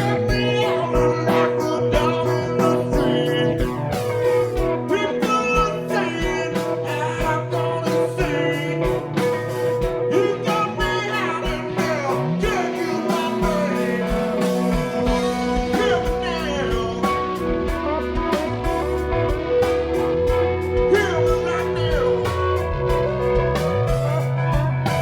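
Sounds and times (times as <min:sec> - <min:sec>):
blues-rock band playing: 0:00.0 - 0:25.0
electric guitar bending notes: 0:00.0 - 0:25.0
steady drum beat: 0:00.0 - 0:25.0.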